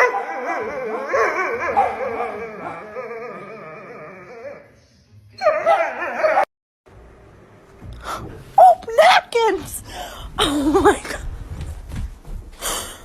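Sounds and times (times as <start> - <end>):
animal wavering cries: 0.2 - 4.8.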